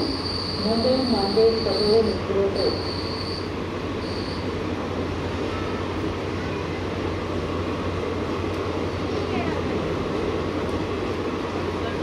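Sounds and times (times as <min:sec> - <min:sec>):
high wheel squeal: 0:00.0 - 0:04.5
train wheels rumbling on rails: 0:00.0 - 0:12.0.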